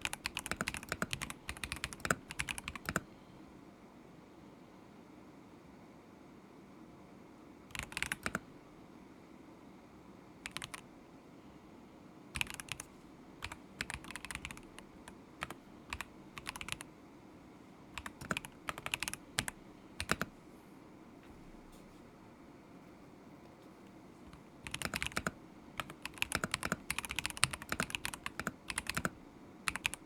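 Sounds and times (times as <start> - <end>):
mechanical keyboard typing: 0.0 - 3.0, 7.7 - 8.4, 10.4 - 10.8, 12.4 - 16.9, 18.0 - 20.4, 24.3 - 30.0.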